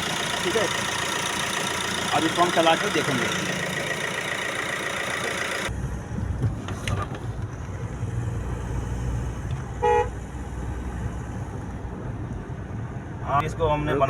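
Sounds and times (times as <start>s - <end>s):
car engine humming: 0.0s - 13.0s
car horn toot: 9.8s - 10.2s.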